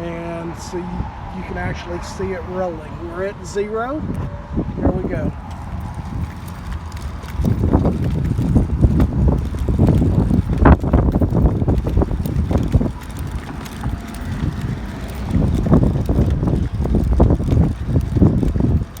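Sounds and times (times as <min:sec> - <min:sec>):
wind buffeting microphone: 0:00.0 - 0:19.0
measuring wheel rolling on ground: 0:04.9 - 0:19.0
footsteps: 0:05.0 - 0:19.0.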